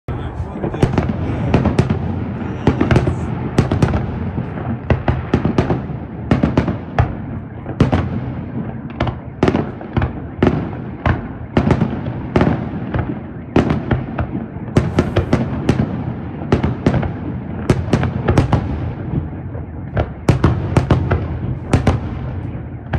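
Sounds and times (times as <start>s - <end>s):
low rumble of echoing reports: 0.1s - 8.8s, 14.5s - 16.4s
fireworks bangs: 0.1s - 22.9s.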